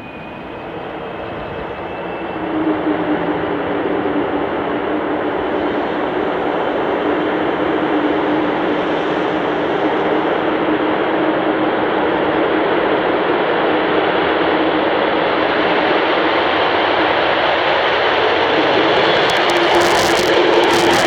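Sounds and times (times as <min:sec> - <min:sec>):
jet engine crackle: 0:18.2 - 0:21.0.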